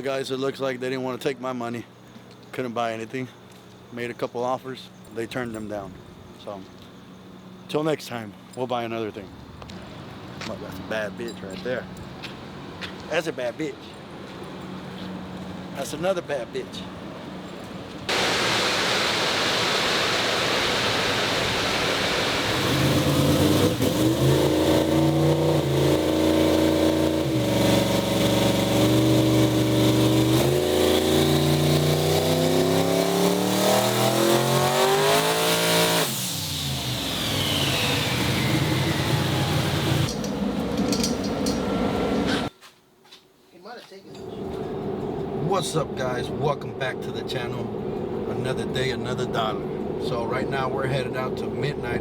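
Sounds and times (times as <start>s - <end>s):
vehicle engine revving hard: 20.6s - 40.8s.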